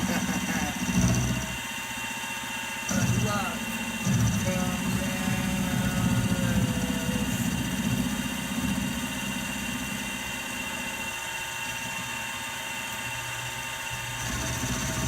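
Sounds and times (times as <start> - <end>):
milling machine whining: 0.0 - 15.0
deep rumble: 2.9 - 11.0.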